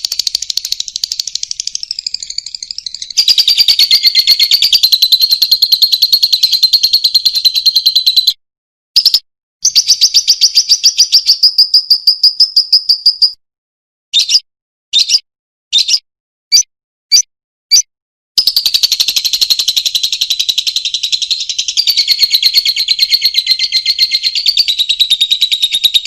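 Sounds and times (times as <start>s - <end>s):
lovebird chattering trills: 0.0s - 8.2s.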